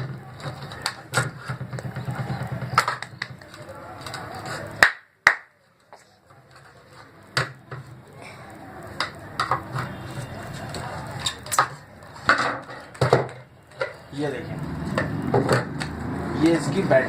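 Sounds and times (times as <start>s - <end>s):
plastic torch casing handled: 0.0s - 4.9s, 8.9s - 14.1s.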